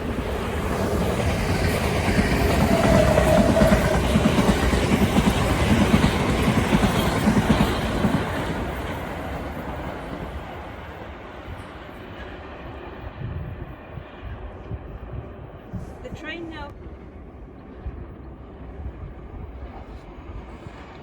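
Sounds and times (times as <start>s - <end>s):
train wheels clattering over rails: 0.0s - 12.8s.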